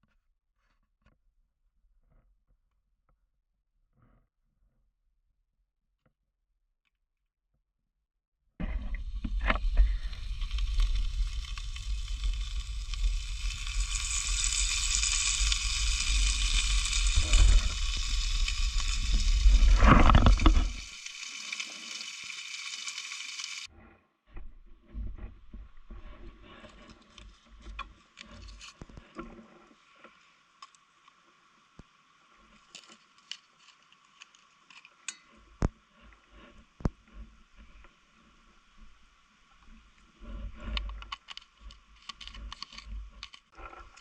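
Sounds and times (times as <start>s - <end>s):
faint crackles and ticks: 8.6s - 23.7s, 24.4s - 44.0s
food sizzling in a pan: 9.0s - 23.7s.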